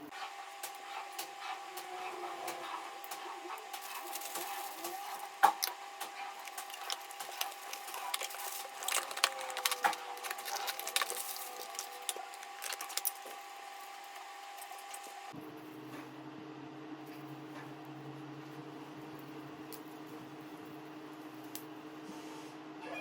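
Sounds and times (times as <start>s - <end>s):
packaging crinkling: 3.8s - 15.2s.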